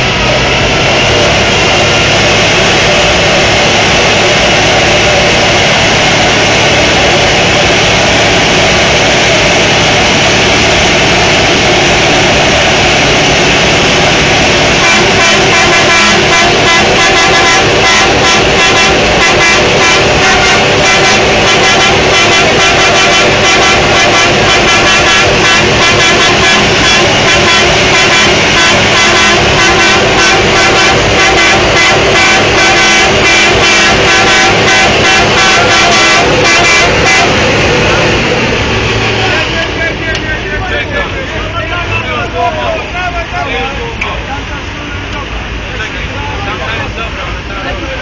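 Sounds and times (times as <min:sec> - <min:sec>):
truck engine at high revs: 0:00.0 - 0:42.8.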